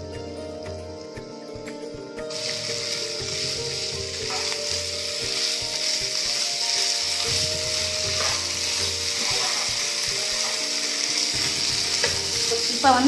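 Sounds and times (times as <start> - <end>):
food sizzling in a frying pan: 2.2 - 13.0
wooden spatula stirring: 7.2 - 10.7.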